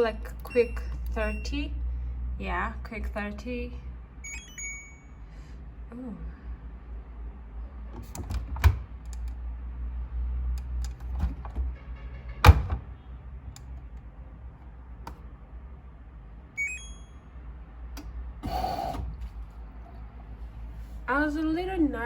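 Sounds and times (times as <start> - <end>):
short electronic beeps: 0.5 - 1.6, 4.2 - 5.2, 16.6 - 17.4.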